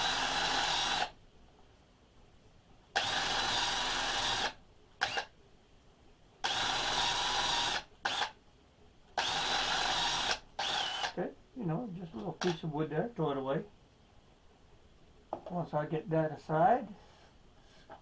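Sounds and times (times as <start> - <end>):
power drill running: 0.0 - 1.1, 3.0 - 5.3, 6.4 - 8.3, 9.2 - 11.2.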